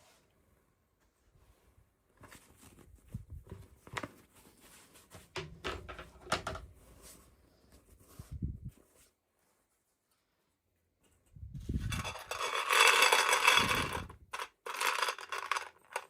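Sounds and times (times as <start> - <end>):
plastic pieces clicking: 12.0 - 16.0.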